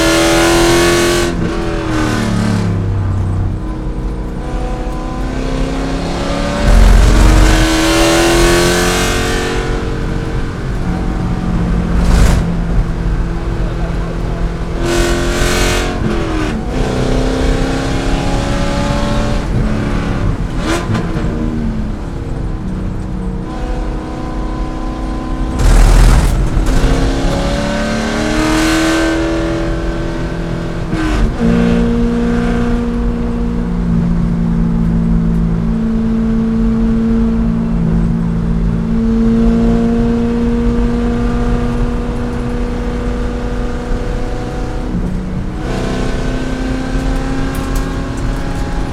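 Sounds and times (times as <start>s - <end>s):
race car engine revving: 0.0s - 48.9s
loud rushing noise: 6.1s - 15.4s, 25.3s - 30.0s.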